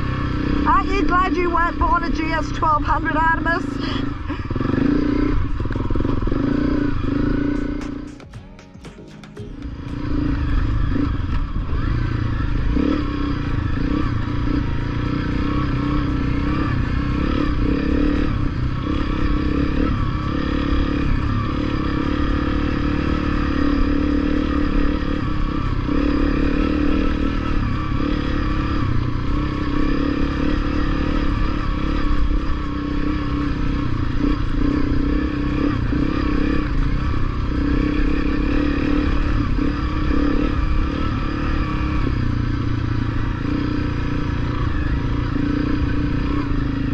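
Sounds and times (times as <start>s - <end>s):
dirt bike engine running: 0.0s - 46.9s.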